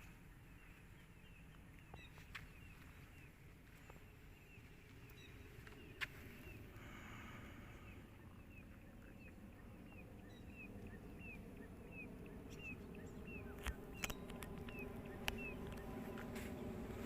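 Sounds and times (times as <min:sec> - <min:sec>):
bird chirping: 0:00.0 - 0:06.6, 0:07.6 - 0:16.8
sharp clicks: 0:13.5 - 0:15.9.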